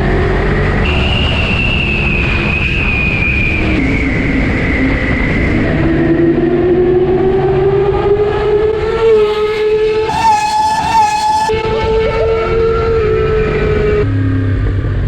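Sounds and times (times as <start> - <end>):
road rumble: 0.0 - 15.0
motorcycle engine accelerating: 6.2 - 15.0.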